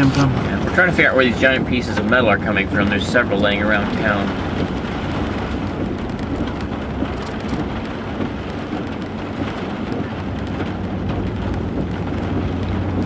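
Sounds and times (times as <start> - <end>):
car engine hum: 0.0 - 13.0
road noise hiss: 0.0 - 13.0.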